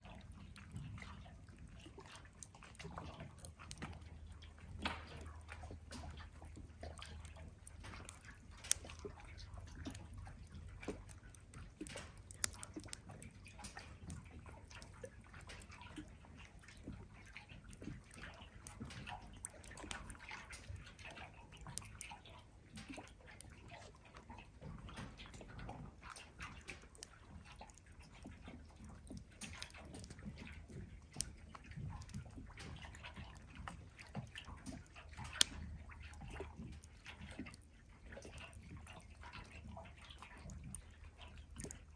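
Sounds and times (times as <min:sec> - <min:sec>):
campfire crackling and popping: 0:03.3 - 0:21.0, 0:26.3 - 0:37.6.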